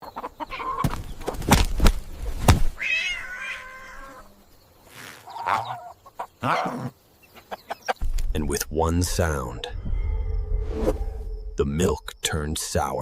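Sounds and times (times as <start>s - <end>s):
sharp thuds: 0.8s - 2.8s
cat meowing: 2.8s - 4.2s.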